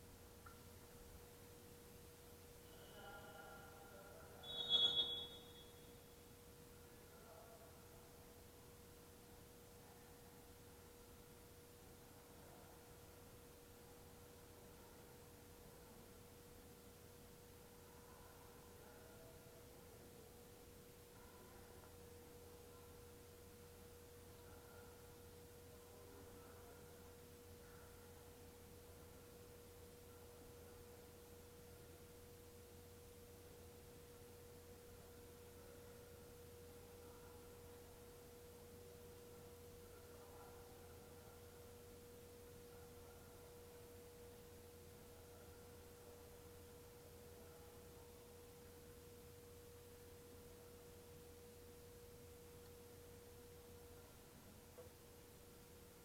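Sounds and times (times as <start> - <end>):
low hum and hiss: 0.0 - 56.0
faint high-pitched tone: 2.5 - 6.3, 17.8 - 32.2.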